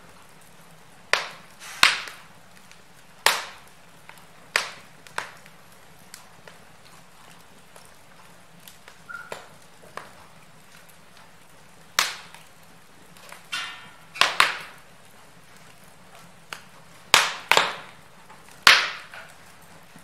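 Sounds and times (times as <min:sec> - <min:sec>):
faint steady hiss: 0:00.0 - 0:20.0
wood fire crackling: 0:00.0 - 0:20.0.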